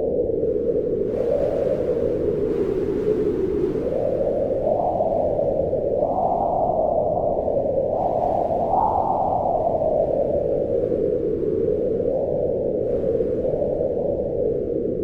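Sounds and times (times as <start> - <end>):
wind blowing: 0.0 - 15.0.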